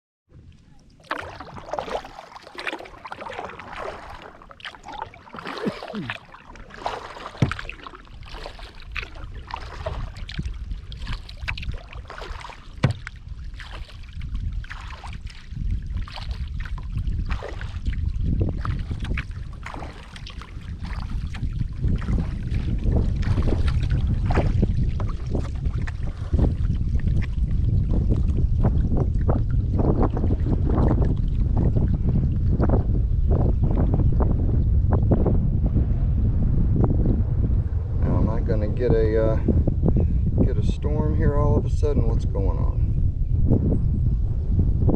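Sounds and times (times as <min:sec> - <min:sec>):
wind rumbling on microphone: 0:00.3 - 0:44.9
paddle splashing in water: 0:00.4 - 0:32.7.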